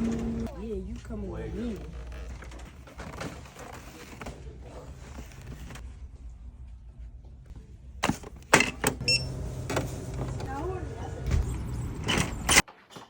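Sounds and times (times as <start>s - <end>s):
faint creaks and rustling: 0.9s - 5.9s.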